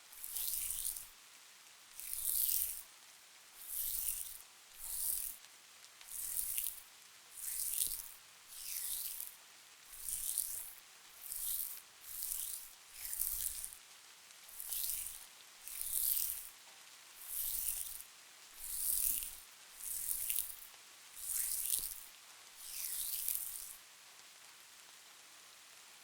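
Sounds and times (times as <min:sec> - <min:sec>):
hands rubbing face mask: 0:00.2 - 0:01.1, 0:03.6 - 0:05.4, 0:06.1 - 0:06.8, 0:07.4 - 0:13.8, 0:14.5 - 0:16.5, 0:17.2 - 0:23.8.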